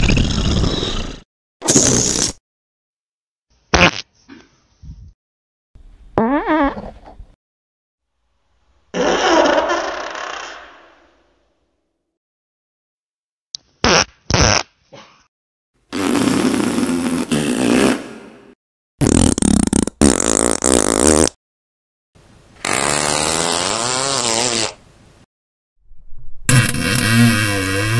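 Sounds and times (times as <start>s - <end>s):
fart sounds: 0.0s - 2.4s, 3.7s - 4.1s, 6.2s - 6.9s, 8.9s - 11.0s, 13.8s - 14.8s, 15.9s - 18.3s, 19.0s - 21.4s, 22.6s - 24.8s, 26.5s - 27.9s.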